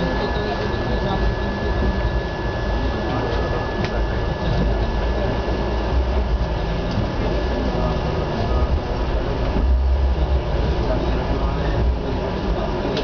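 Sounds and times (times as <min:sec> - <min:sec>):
train wheels rumbling and rattling: 0:05.9 - 0:13.0.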